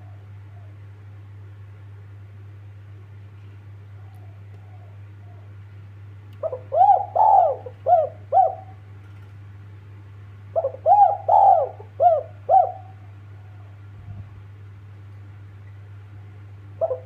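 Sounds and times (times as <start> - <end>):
dove cooing: 0.0 - 1.0, 3.9 - 5.7, 6.4 - 9.0, 10.5 - 14.0, 16.8 - 17.0
steady low hum: 0.0 - 17.0.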